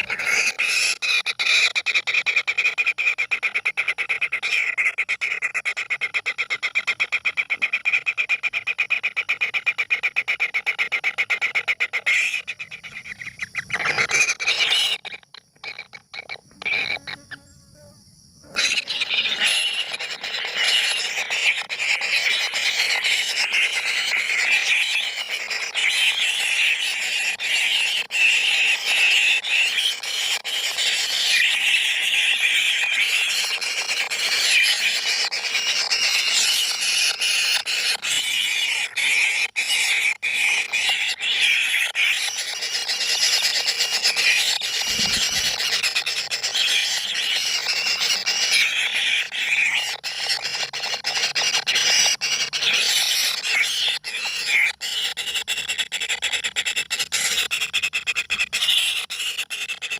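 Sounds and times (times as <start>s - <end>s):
high-pitched squealing: 11.6s - 17.6s, 18.4s - 57.5s.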